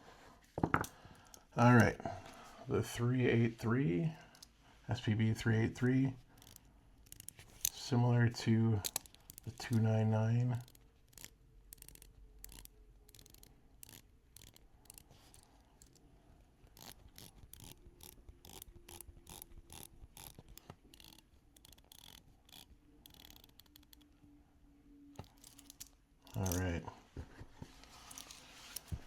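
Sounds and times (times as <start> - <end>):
watch bezel ratchet clicks: 6.3 - 7.8, 8.8 - 9.8, 10.6 - 16.0, 16.7 - 24.1, 25.2 - 26.6.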